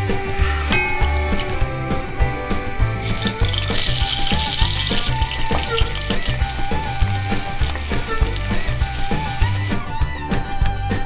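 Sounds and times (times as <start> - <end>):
vegetables sizzling in fat: 0.0 - 9.9.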